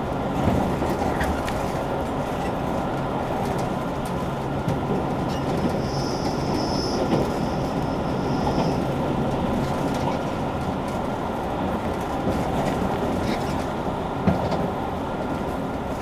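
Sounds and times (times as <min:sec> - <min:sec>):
train wheels rumbling on rails: 0:00.0 - 0:16.0
thin high whistle: 0:05.8 - 0:09.0.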